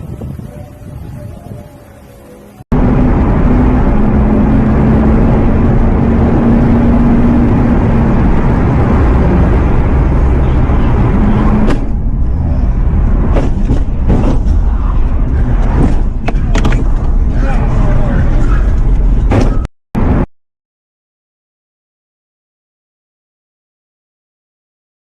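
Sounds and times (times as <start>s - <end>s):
vehicle road and engine noise: 0.0s - 20.3s.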